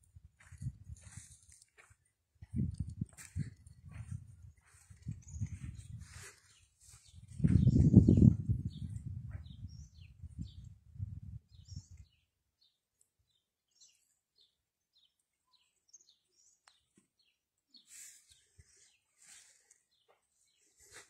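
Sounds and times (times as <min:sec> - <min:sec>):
small bird chirping: 0:02.6 - 0:10.8.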